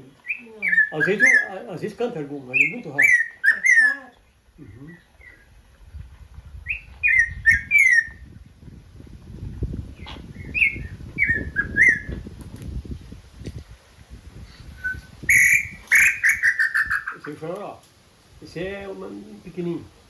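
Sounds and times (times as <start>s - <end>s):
bird whistling downward notes: 6.6s - 8.2s, 10.4s - 12.2s, 14.8s - 17.2s.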